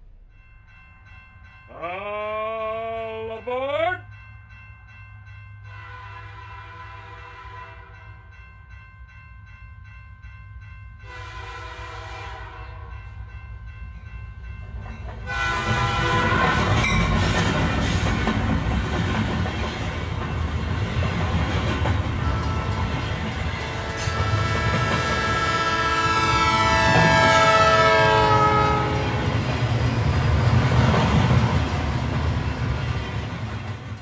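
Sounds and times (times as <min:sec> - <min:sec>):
locomotive whistle blasts: 0:11.1 - 0:12.8, 0:15.3 - 0:17.0, 0:23.7 - 0:29.2
train clatter: 0:14.5 - 0:34.0.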